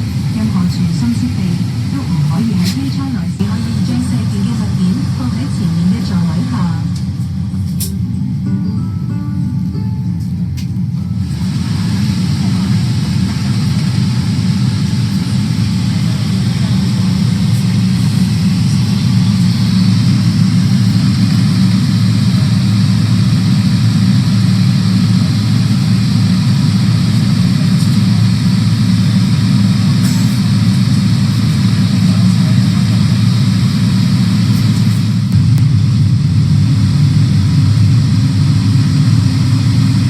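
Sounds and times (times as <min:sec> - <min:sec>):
airliner cabin engine drone: 0:00.0 - 0:40.0.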